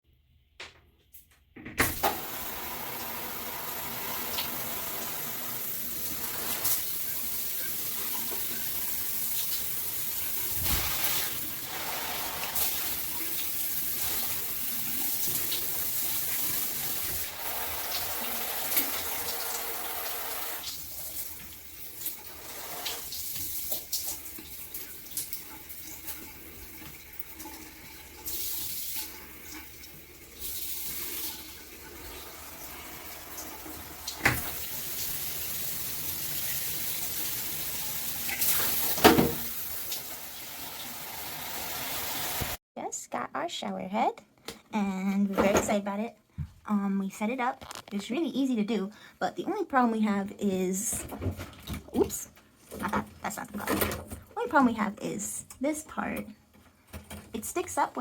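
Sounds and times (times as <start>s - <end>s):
water spraying from shower head: 2.0s - 26.4s, 32.2s - 42.6s.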